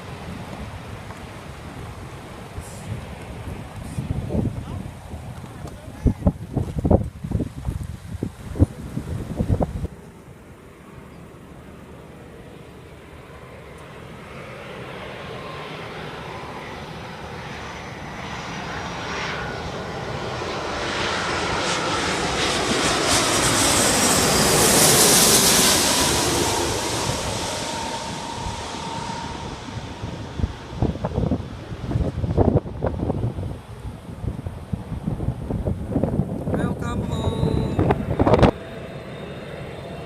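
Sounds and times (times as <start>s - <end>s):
jet airliner engine roar: 0.0s - 40.0s
whining jet engine tones: 10.9s - 40.0s.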